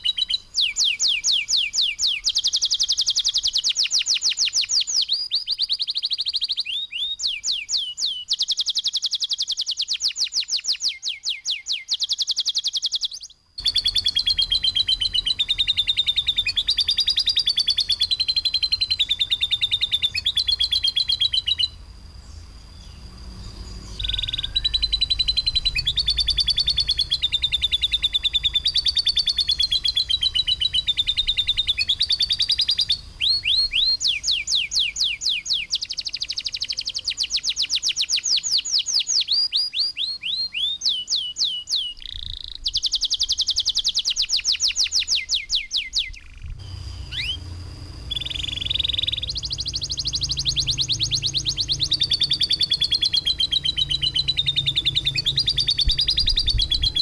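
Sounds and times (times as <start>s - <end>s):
songbird harsh trilling: 0.0s - 57.0s
low rumble: 46.3s - 57.0s.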